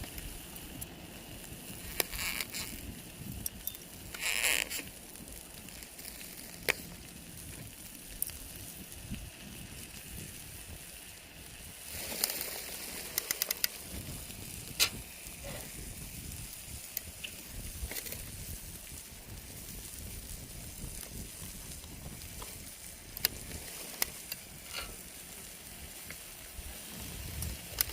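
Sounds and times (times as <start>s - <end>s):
campfire crackling and popping: 0.0s - 27.9s.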